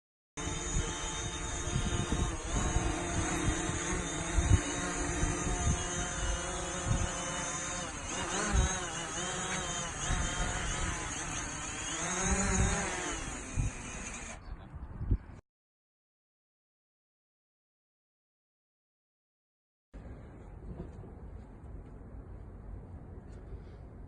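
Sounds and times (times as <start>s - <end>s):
drone propellers whining: 0.4s - 14.4s
wind buffeting microphone: 0.4s - 15.4s.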